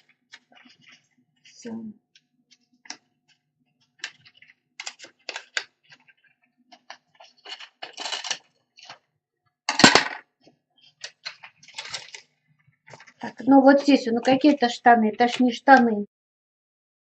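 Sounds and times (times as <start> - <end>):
plastic bottle crinkle: 0.0 - 1.6, 3.8 - 9.1, 10.8 - 15.5
paper and plastic rustling: 0.0 - 1.7, 3.8 - 9.1, 10.8 - 15.9.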